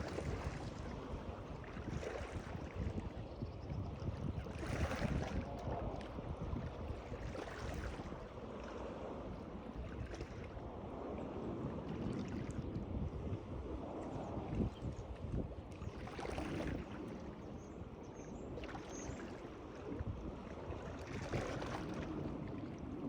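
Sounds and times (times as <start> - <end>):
water splashing and lapping: 0.0 - 23.0.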